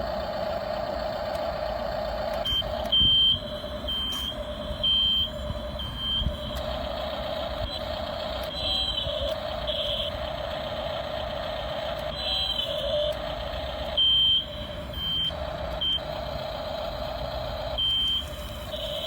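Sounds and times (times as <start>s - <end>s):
toy truck motor whining: 0.0s - 19.0s
short high-pitched beeps: 2.4s - 6.4s.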